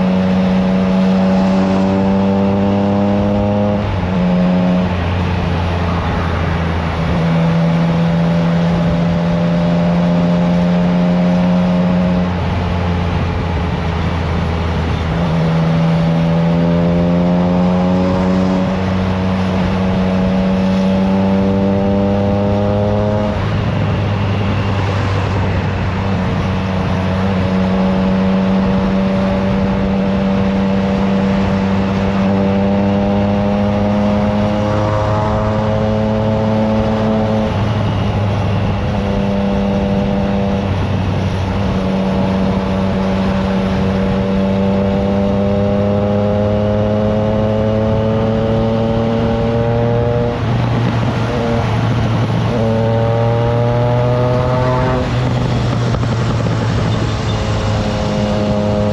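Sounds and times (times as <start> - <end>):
wind rushing: 47.6 - 58.9
motorcycle engine running: 49.2 - 58.9.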